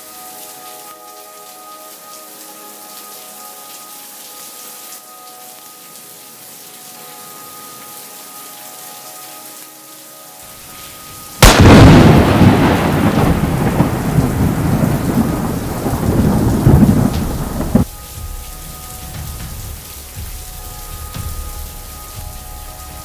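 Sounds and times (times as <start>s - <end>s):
rain falling: 0.0s - 23.0s
thunderclap and rumble: 11.4s - 23.0s.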